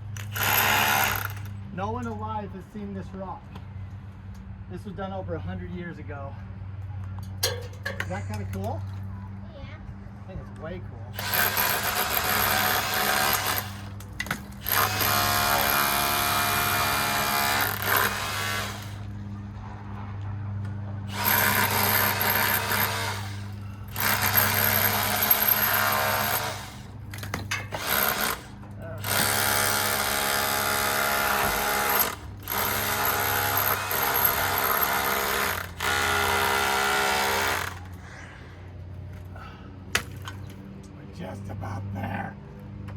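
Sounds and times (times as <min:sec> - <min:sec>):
power tool running in bursts: 0:11.2 - 0:14.0, 0:14.6 - 0:19.1, 0:21.1 - 0:26.9, 0:27.7 - 0:37.9.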